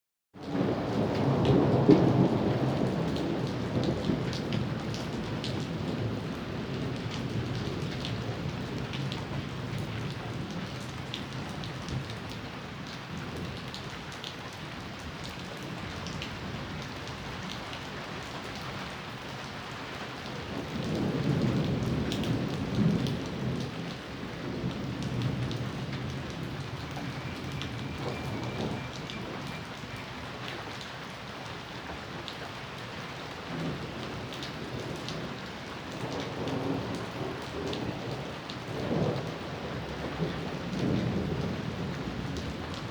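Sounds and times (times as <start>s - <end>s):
thunder rumbling low: 0.4s - 12.1s, 20.5s - 29.9s, 33.5s - 42.9s
steady rain falling: 0.4s - 42.9s.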